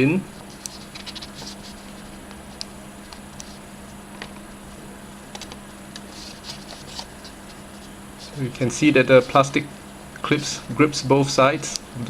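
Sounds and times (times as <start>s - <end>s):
low steady hum: 0.0s - 12.0s
paper aeroplane rustling: 0.4s - 4.4s, 5.4s - 9.6s.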